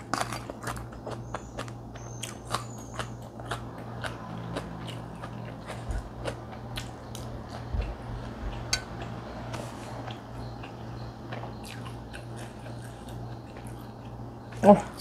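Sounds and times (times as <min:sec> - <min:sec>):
person chewing: 0:00.0 - 0:14.2
steady low hum: 0:00.0 - 0:15.0.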